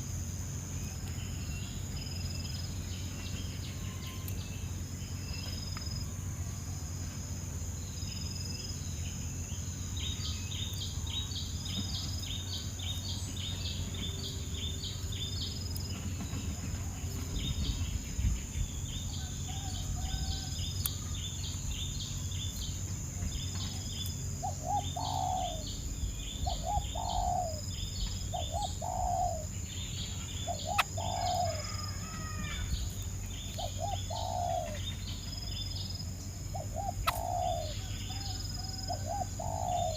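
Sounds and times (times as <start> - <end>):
rapid high bird chirps: 23.4 - 39.9.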